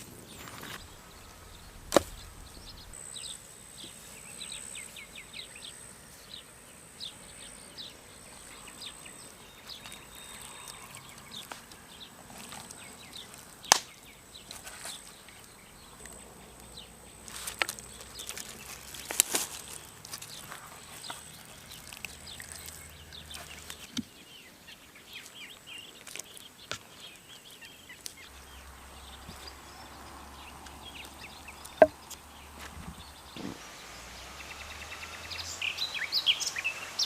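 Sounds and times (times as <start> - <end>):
small birds chirping: 0.0 - 37.0
sharp wooden knocks: 31.8 - 32.0.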